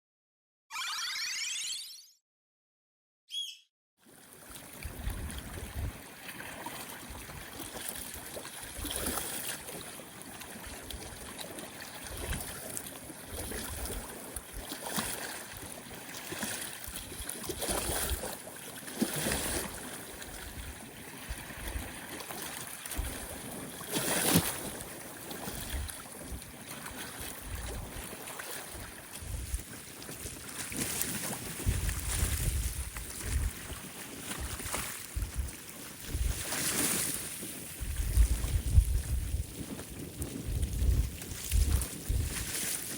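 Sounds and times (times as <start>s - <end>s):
choppy water lapping at shore: 4.0s - 42.9s
wind buffeting the microphone: 4.8s - 6.0s, 24.6s - 42.9s.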